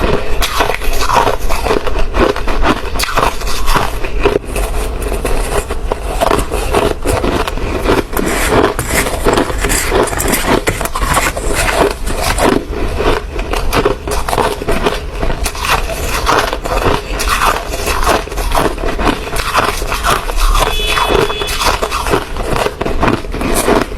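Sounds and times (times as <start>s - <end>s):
ice being chewed: 0.0s - 23.9s.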